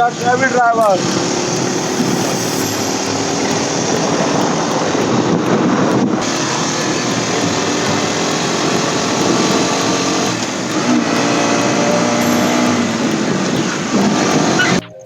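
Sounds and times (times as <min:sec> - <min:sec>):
motorcycle engine running: 0:00.0 - 0:14.8
wind rushing over microphone: 0:00.8 - 0:14.8.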